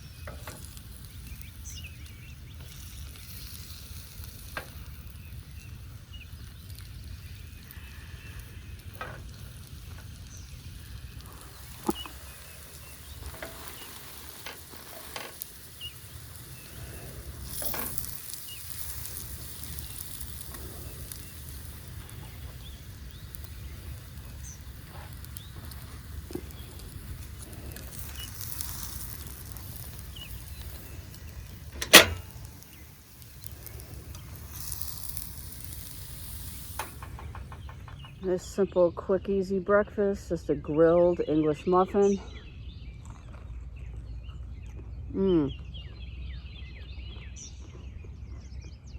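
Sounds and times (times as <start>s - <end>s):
muffin sizzling on a stove: 0.0s - 38.6s
sharp clack: 31.8s - 32.4s.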